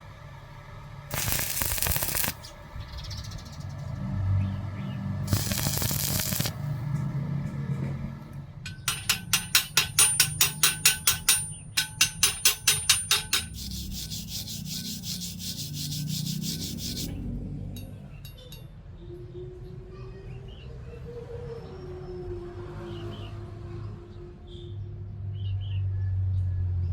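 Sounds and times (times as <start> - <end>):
rhythmic hand scraping: 1.1 - 2.6, 8.9 - 17.2.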